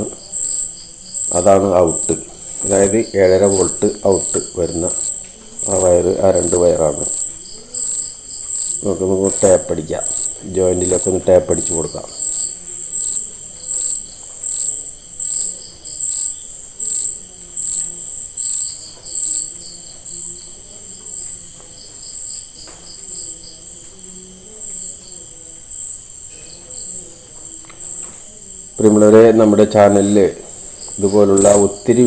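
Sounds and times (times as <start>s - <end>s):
continuous high trill: 0.0s - 32.0s
cricket chirping: 0.0s - 32.0s.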